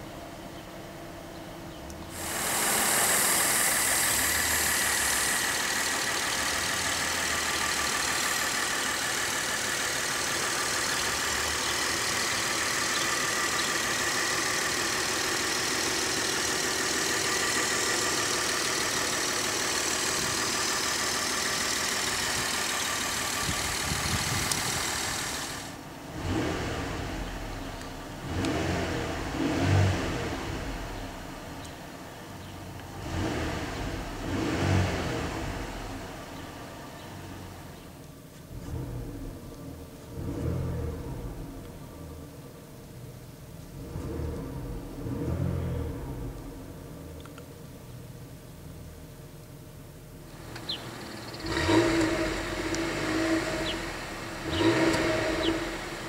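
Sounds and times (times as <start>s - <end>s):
car engine starting and idling: 0.0s - 56.0s
engine revving: 2.1s - 31.7s, 32.8s - 37.7s, 38.5s - 42.2s, 43.7s - 47.3s, 50.3s - 56.0s.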